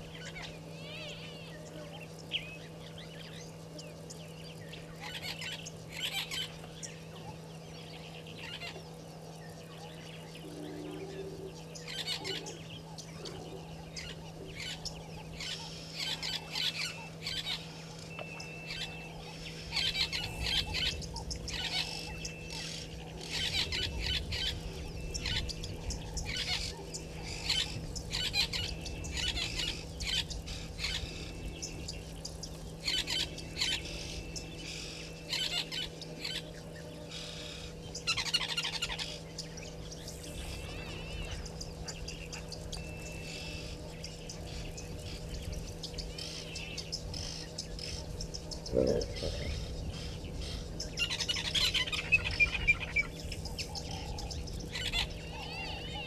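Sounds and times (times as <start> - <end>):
steady low hum: 0.0 - 56.0
wild birds chirping: 0.0 - 56.0.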